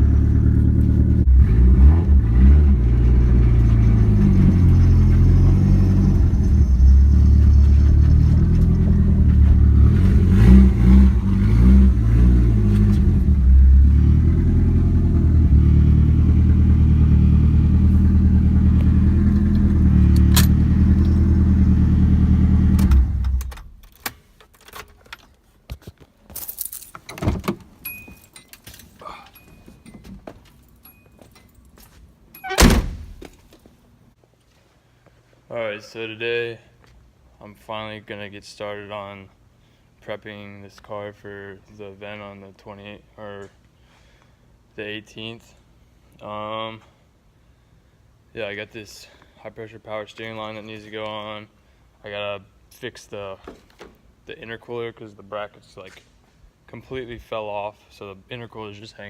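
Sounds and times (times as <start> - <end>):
car engine running and revving: 0.0 - 23.4
light metal clinks and jangles: 27.8 - 32.5.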